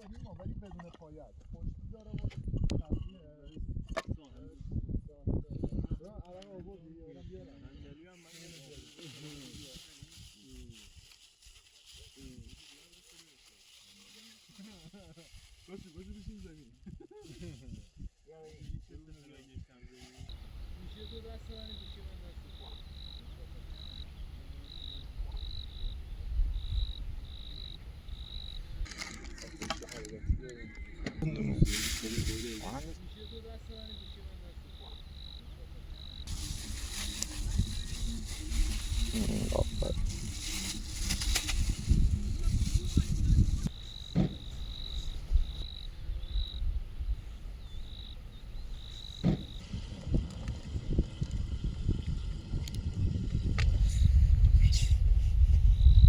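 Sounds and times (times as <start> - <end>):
wind rumble on microphone: 0.0 - 8.0, 15.2 - 56.0
crickets chirping: 20.2 - 29.6, 31.6 - 49.9, 53.7 - 56.0
frogs trilling: 20.3 - 28.8, 33.1 - 37.0, 43.7 - 49.6
low rumble: 32.9 - 56.0
rustling clatter: 36.3 - 44.6
thump: 44.1 - 44.5, 49.2 - 49.5.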